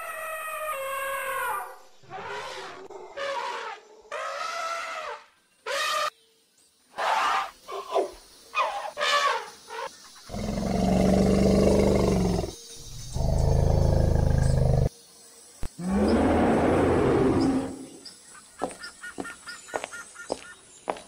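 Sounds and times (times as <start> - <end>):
deep gorilla roars: 10.3 - 14.9, 15.8 - 18.0.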